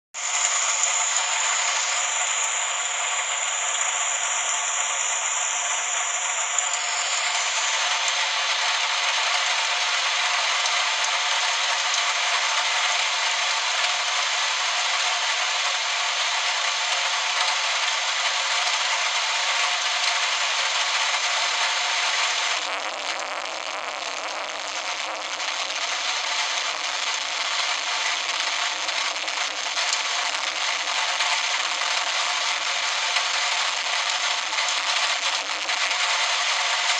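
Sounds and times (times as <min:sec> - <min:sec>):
heavy rain hiss: 0:00.2 - 0:10.5, 0:18.4 - 0:36.9.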